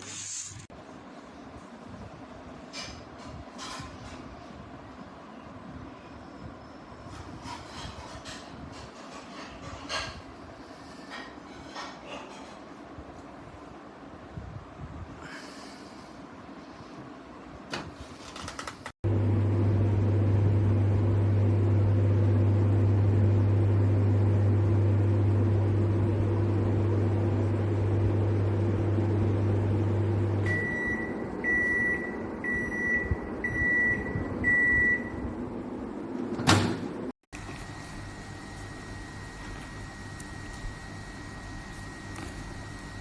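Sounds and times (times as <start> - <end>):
microwave oven humming: 19.0 - 43.0.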